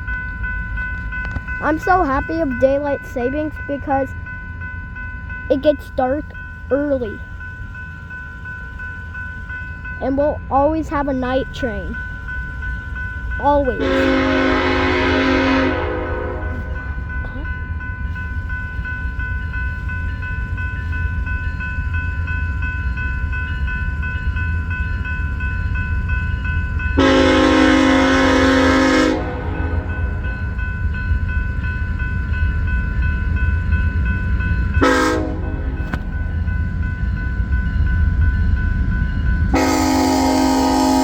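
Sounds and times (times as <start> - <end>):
train rumbling: 0.0 - 41.0
locomotive horn blasts: 13.8 - 16.7, 27.0 - 30.1, 34.8 - 35.7, 39.5 - 41.0.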